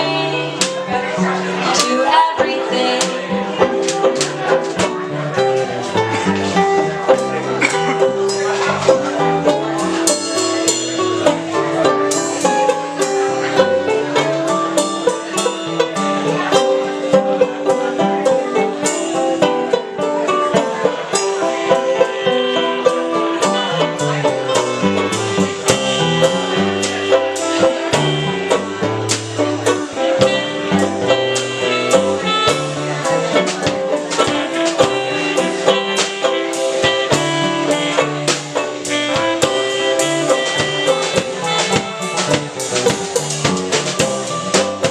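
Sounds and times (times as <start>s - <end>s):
live band playing instrumental: 0.0s - 44.9s
quickly picked plucked strings: 0.0s - 44.9s
moving bass line: 21.1s - 44.9s.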